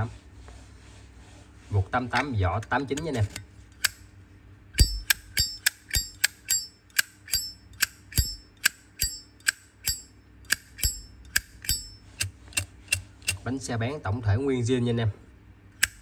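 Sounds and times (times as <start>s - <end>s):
lighter metallic clinks: 4.8s - 13.4s.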